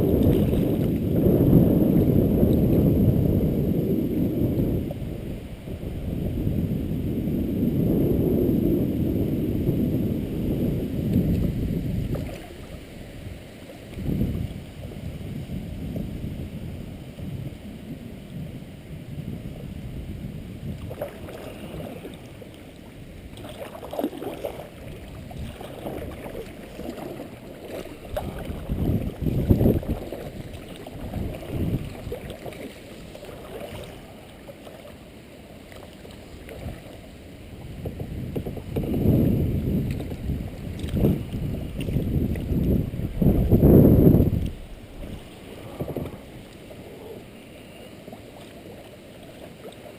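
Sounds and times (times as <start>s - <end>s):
wind rumbling on microphone: 0.0s - 34.9s, 35.6s - 49.9s
water moving around a kayak: 0.0s - 49.9s.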